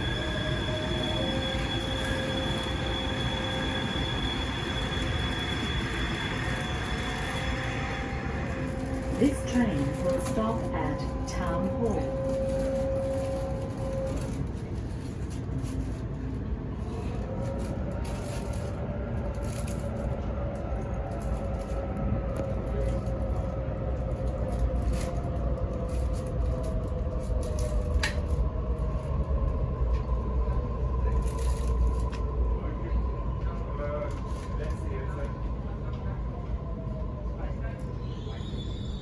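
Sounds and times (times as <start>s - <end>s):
train motors whining: 0.0s - 14.5s
train rumbling on rails: 0.0s - 39.0s.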